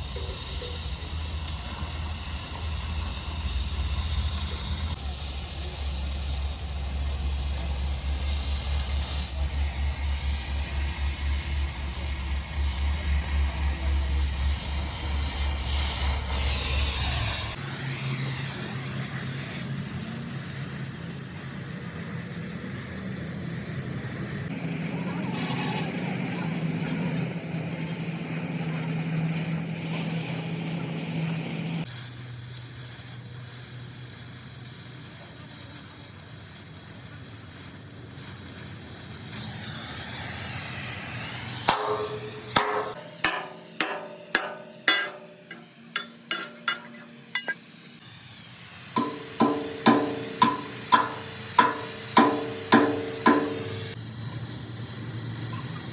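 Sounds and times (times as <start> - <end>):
hissing machine noise: 0.0 - 20.8, 39.0 - 55.9
hammer striking steel: 41.7 - 47.7, 49.0 - 54.0.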